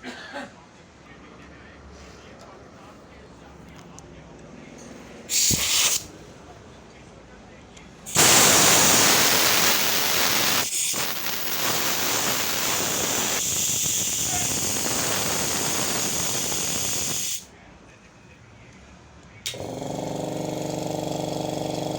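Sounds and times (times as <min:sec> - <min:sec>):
compressed air hissing: 0:05.3 - 0:06.1, 0:08.1 - 0:17.5.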